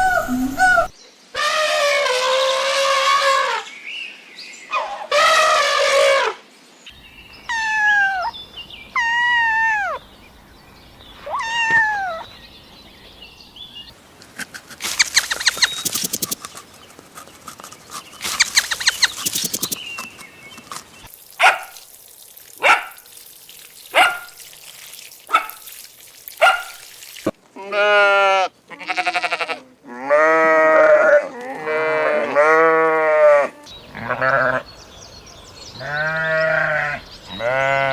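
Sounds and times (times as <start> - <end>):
rapid clicking chatter: 14.8 - 20.2
short sharp barks: 26.4 - 26.8.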